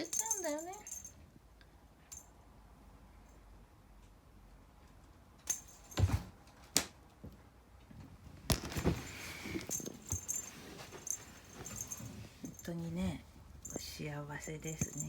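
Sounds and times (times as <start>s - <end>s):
light metallic jingle: 0.0s - 1.2s, 2.1s - 2.4s, 5.4s - 6.3s, 8.5s - 15.0s
cats pouncing knocks and thuds: 5.9s - 6.4s.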